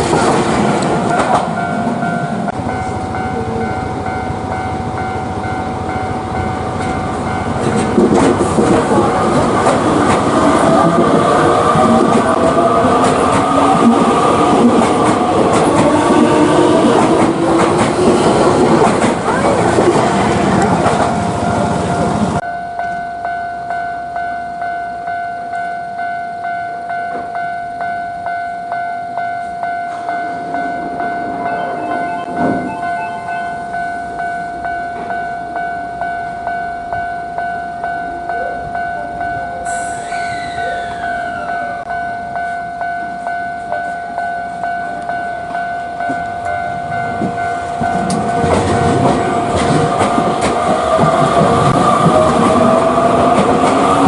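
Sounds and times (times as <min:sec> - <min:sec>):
regular rail clicks: 0:00.0 - 0:04.0, 0:05.1 - 0:22.4, 0:44.8 - 0:54.0
train motor whine: 0:39.7 - 0:41.9
falling whistle-like glides: 0:39.8 - 0:41.8.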